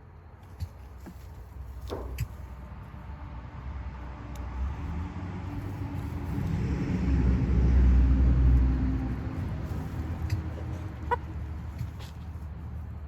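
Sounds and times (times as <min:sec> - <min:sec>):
vehicle engine driving past: 0:02.8 - 0:13.0.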